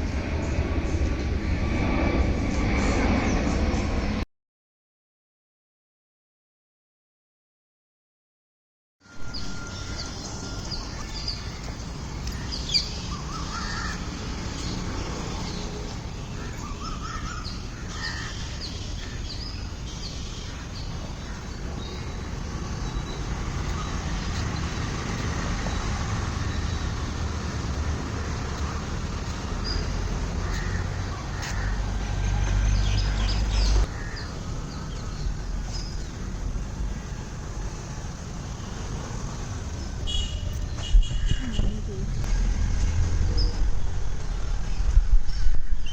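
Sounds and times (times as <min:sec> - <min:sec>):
steady low rumble: 0:00.0 - 0:04.2, 0:09.4 - 0:38.5, 0:41.4 - 0:45.9
birds chirping: 0:09.2 - 0:41.8.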